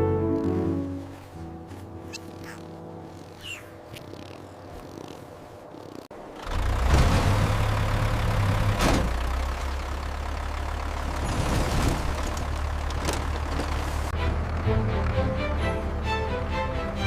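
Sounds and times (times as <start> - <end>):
truck engine idling: 5.6 - 17.0.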